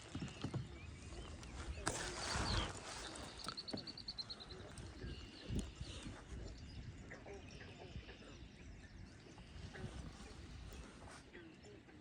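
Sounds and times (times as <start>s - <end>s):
wind gusting on microphone: 0.6s - 3.6s, 4.4s - 8.1s.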